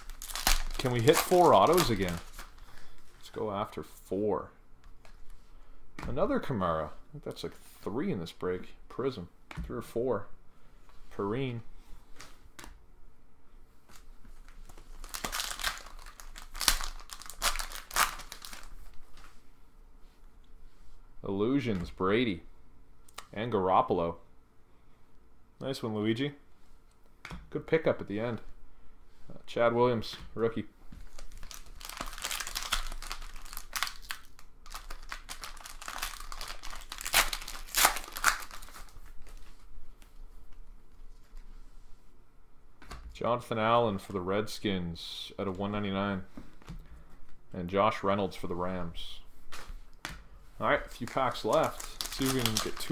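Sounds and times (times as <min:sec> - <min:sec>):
foil wrappers tearing and crinkling: 0:00.0 - 0:03.0, 0:14.6 - 0:18.8, 0:31.1 - 0:39.4, 0:50.9 - 0:52.9.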